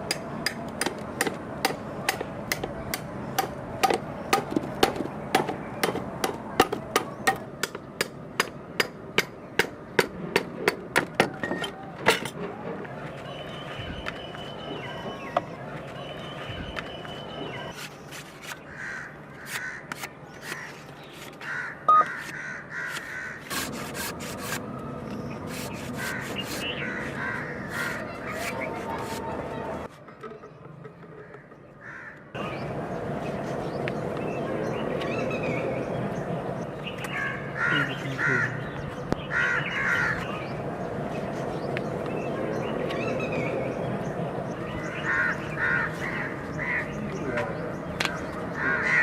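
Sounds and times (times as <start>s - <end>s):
steady background noise: 0.0s - 49.0s
bird calling: 13.2s - 35.9s.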